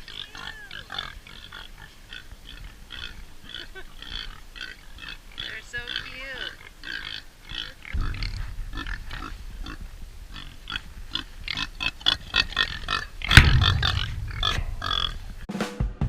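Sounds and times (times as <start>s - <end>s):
pigs grunting and oinking: 0.0s - 15.2s
low rumble: 7.9s - 15.5s.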